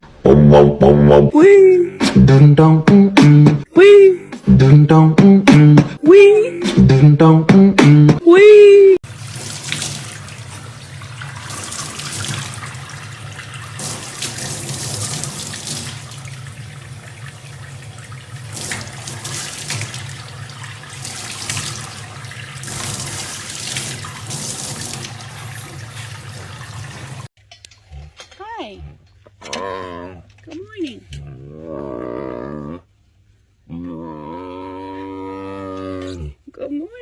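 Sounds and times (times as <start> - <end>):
tap water running into sink: 9.1 - 27.3.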